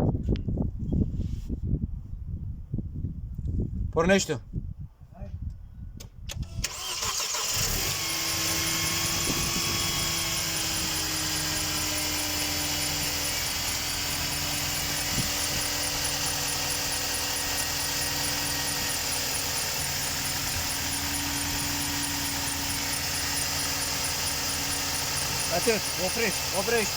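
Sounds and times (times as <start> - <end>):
car engine starting and running: 6.3 - 26.9
fast high ticking: 7.8 - 26.9.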